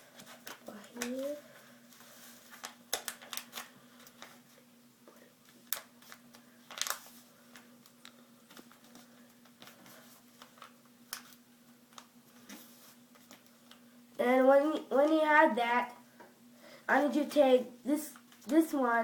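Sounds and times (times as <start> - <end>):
faint steady hum: 0.0 - 19.0
paper folding and creasing: 1.9 - 4.4, 5.5 - 13.8.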